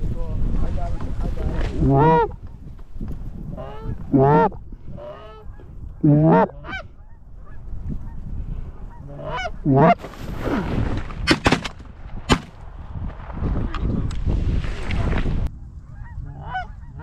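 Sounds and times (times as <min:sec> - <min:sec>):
geese honking: 0:01.8 - 0:02.4, 0:03.5 - 0:08.2, 0:08.8 - 0:10.0, 0:15.9 - 0:17.0.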